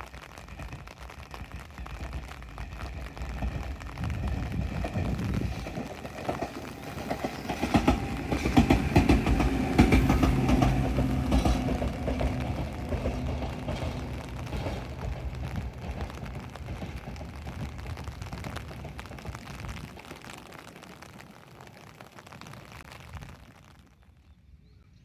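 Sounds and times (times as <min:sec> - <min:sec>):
electric train rumble and rail noise: 0:00.4 - 0:20.1.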